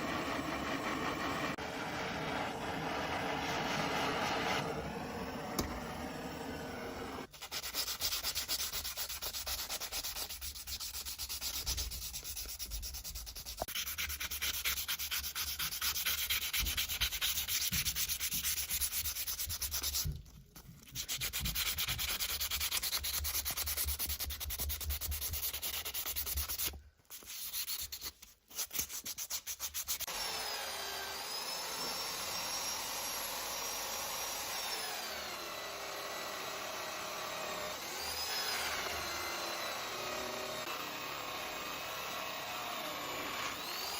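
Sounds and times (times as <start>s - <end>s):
sanding on metal: 7.3s - 20.1s, 20.9s - 30.1s.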